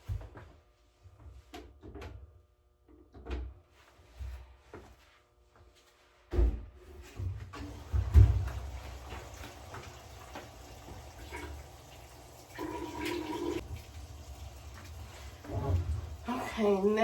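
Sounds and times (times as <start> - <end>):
washing machine hum: 0.0 - 17.0
water running into washing machine: 7.5 - 17.0.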